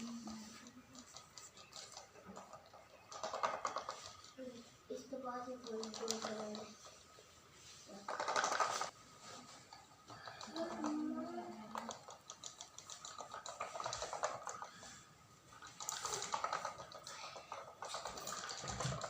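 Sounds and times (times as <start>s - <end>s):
small hard objects clicking: 0.0s - 4.4s, 7.9s - 8.9s, 10.1s - 14.9s, 15.5s - 19.0s.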